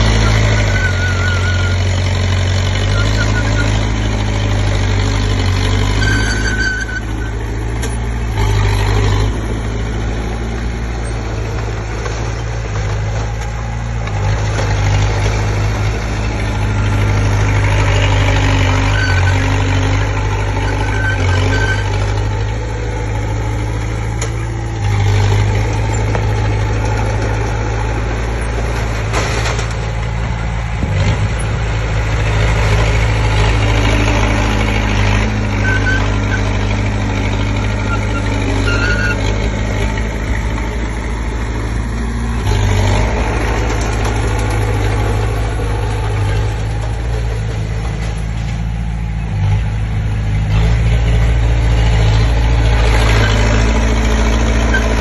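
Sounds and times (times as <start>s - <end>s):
bulldozer diesel engine running: 0.0s - 55.0s
brief high squeaks: 6.0s - 7.4s.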